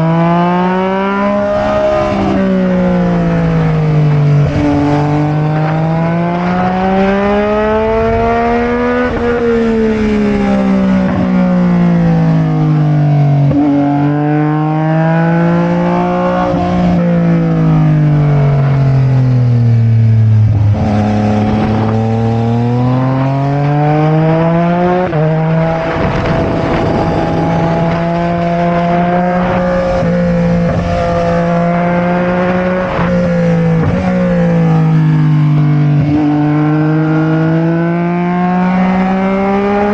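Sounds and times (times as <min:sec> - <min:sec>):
motorcycle engine revving: 0:00.0 - 0:39.9
wind rush: 0:15.4 - 0:35.0.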